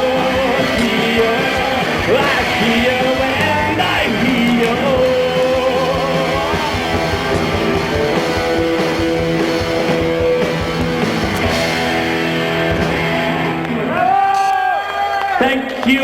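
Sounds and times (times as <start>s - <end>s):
fast steady drumming: 0.0s - 13.6s
guitars holding long notes: 0.0s - 14.2s.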